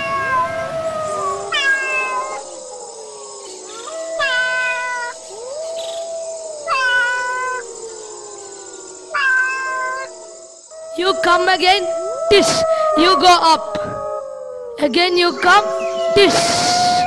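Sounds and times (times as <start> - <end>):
cat meowing: 0.0 - 2.5, 3.7 - 5.2, 6.6 - 7.7, 9.1 - 10.1.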